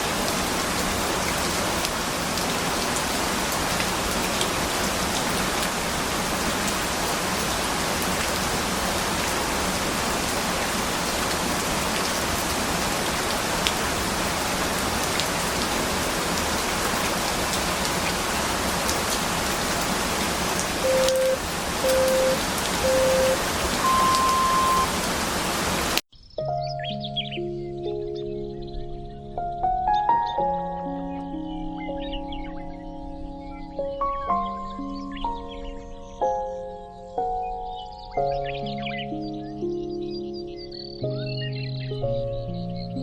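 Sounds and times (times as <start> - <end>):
steady rain: 0.0 - 26.0
timer beeps: 20.8 - 24.9.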